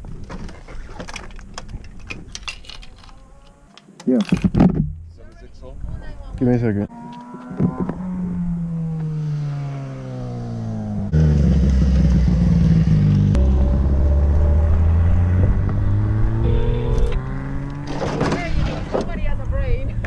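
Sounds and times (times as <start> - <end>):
motorcycle engine running: 7.8 - 17.8.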